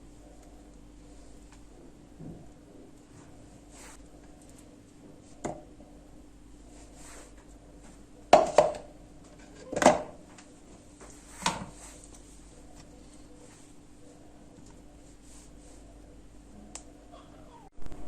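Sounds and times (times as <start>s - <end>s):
kitchenware knocking and clattering: 8.3s - 8.8s, 9.4s - 10.2s.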